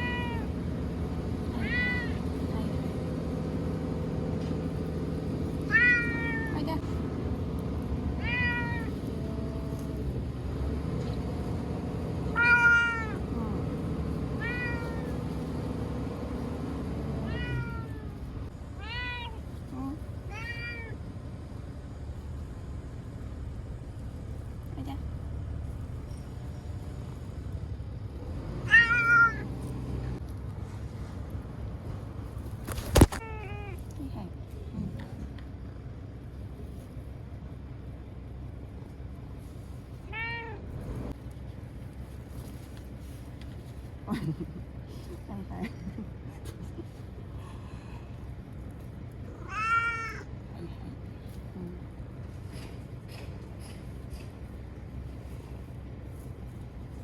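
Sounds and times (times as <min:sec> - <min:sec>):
cat meowing: 0:00.0 - 0:00.5, 0:01.5 - 0:02.2, 0:05.7 - 0:06.7, 0:08.2 - 0:09.1, 0:12.3 - 0:13.2, 0:14.4 - 0:15.2, 0:17.2 - 0:18.2, 0:18.8 - 0:19.4, 0:20.3 - 0:21.0, 0:28.7 - 0:29.5, 0:33.0 - 0:33.8, 0:40.1 - 0:40.6, 0:49.3 - 0:50.3
low rumble: 0:00.0 - 0:28.5.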